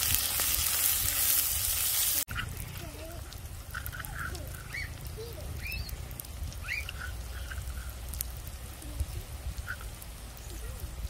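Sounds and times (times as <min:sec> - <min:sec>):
birds chirping: 0:03.8 - 0:08.0.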